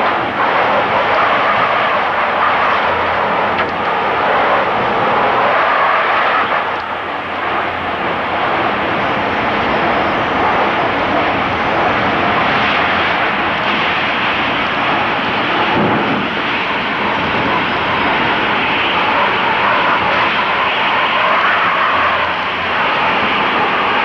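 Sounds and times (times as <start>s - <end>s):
tornado wind roaring: 0.0s - 24.0s.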